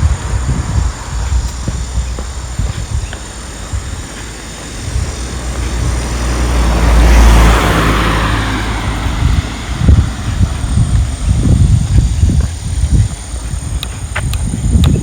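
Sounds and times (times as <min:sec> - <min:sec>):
footsteps thudding: 0:00.0 - 0:07.6
road vehicle passing by: 0:00.0 - 0:12.8.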